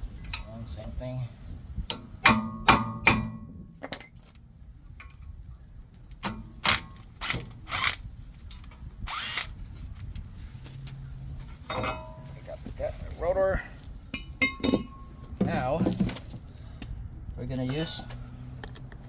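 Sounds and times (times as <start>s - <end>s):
metal handling sounds: 9.8s - 16.5s.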